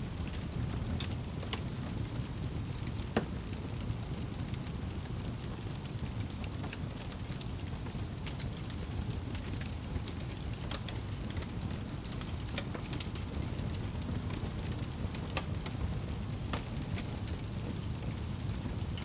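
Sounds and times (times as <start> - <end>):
firewood popping and snapping: 0.0 - 19.0
wood fire crackling: 0.0 - 19.0.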